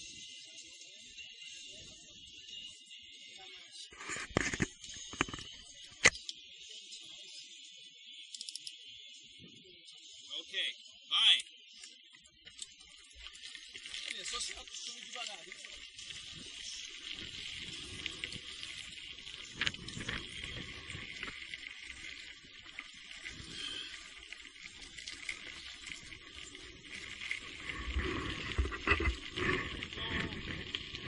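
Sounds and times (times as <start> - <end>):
bike on wet trail: 13.3 - 31.0
rain hissing: 17.2 - 31.0.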